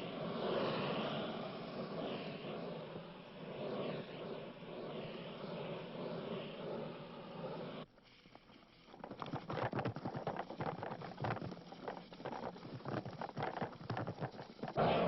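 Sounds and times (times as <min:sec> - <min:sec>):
steady noise: 0:00.0 - 0:07.9
dense crackling and pattering: 0:08.2 - 0:14.8.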